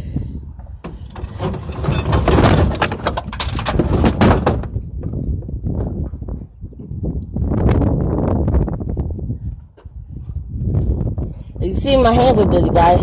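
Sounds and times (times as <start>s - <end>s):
heavy engine clattering and scraping: 0.7s - 5.2s.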